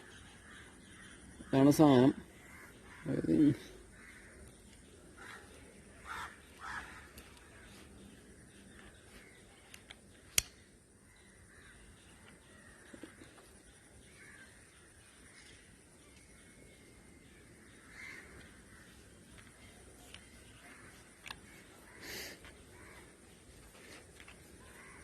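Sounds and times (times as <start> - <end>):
faint bird cawing: 2.2 - 8.1, 11.0 - 15.7, 17.2 - 25.0
sharp clicks: 9.6 - 10.7.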